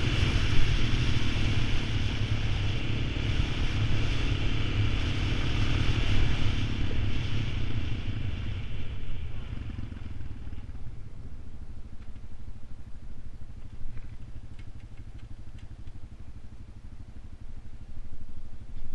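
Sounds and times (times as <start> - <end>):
atv engine rumble: 0.0 - 18.9.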